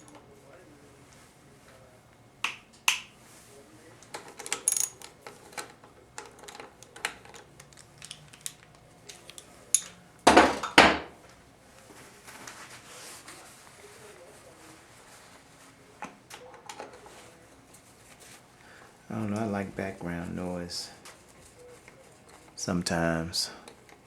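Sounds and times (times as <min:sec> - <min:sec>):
small metal parts clinking: 0:04.1 - 0:10.0.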